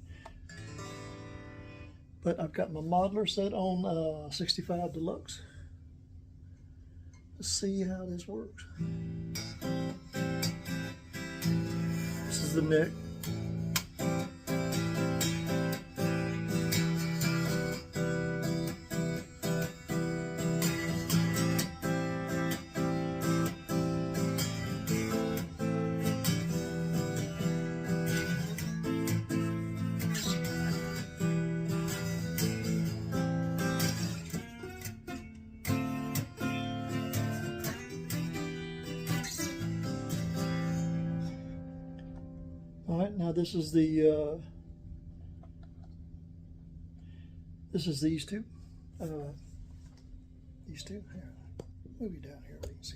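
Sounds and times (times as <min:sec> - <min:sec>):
electric guitar chords and notes: 0:00.0 - 0:02.2, 0:08.6 - 0:46.4.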